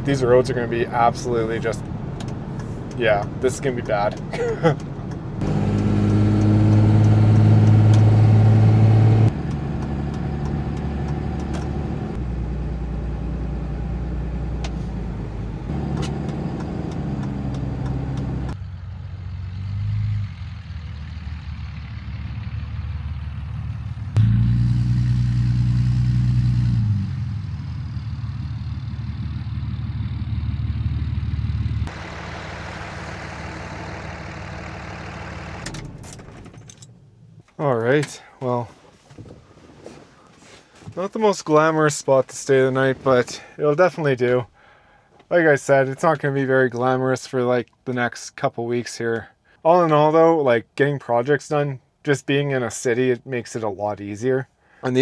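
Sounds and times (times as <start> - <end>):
pickup truck engine running: 0.9 - 36.4.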